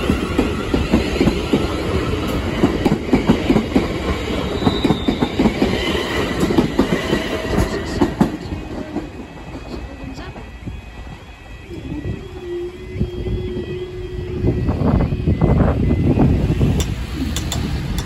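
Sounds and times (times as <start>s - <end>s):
high wheel squeals: 4.4s - 6.4s.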